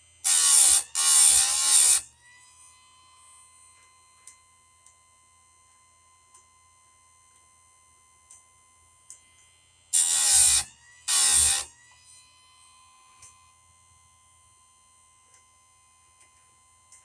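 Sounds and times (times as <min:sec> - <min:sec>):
chain sharpener grinding: 0:00.2 - 0:02.1, 0:10.0 - 0:11.7.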